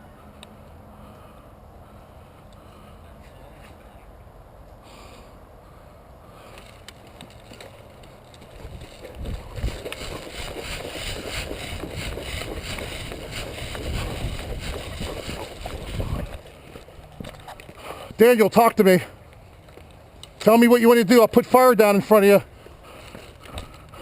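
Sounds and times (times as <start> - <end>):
person wading through water: 8.6 - 16.8.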